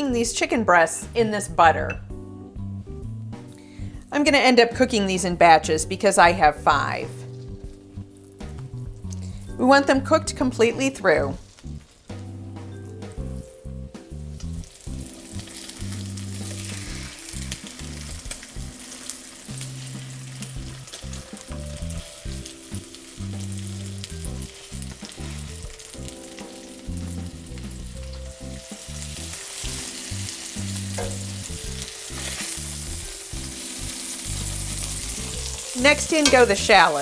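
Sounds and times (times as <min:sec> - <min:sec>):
chicken sizzling in butter: 0:10.4 - 0:37.0
metal tongs clicking: 0:31.0 - 0:31.3, 0:36.0 - 0:36.6.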